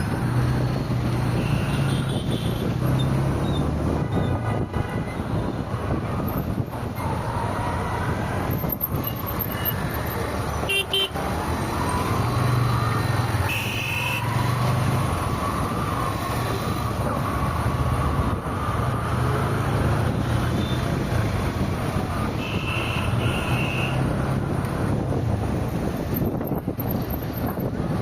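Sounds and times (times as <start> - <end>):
car driving in traffic: 0.0 - 28.0
vehicle horn toots: 13.4 - 14.3, 22.4 - 24.0.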